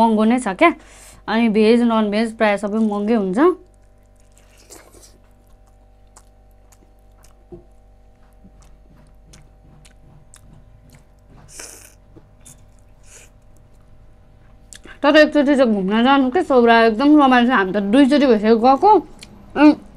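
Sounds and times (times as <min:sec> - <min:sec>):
person chewing food: 0:03.6 - 0:15.0.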